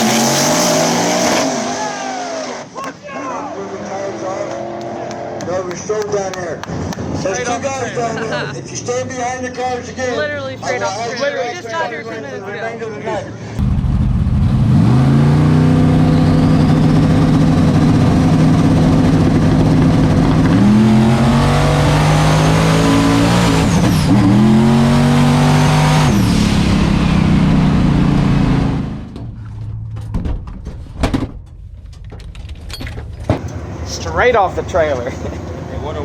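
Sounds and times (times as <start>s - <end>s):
drag car engine at full throttle: 0.0s - 2.7s, 13.6s - 30.1s.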